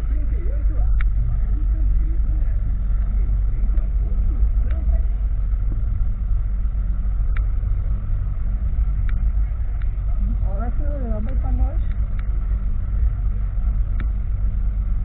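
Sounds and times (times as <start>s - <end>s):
motorcycle engine drone: 0.0s - 15.0s
wind rumble on microphone: 0.0s - 15.0s
faint clicks: 7.3s - 7.5s.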